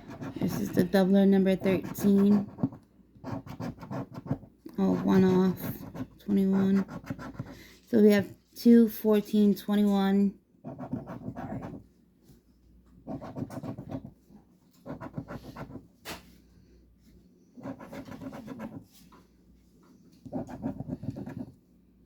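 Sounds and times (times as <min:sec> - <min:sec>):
scratching lottery ticket: 0:00.0 - 0:07.8, 0:10.7 - 0:11.8, 0:13.1 - 0:14.1, 0:14.8 - 0:15.8, 0:17.6 - 0:18.9, 0:20.3 - 0:21.5.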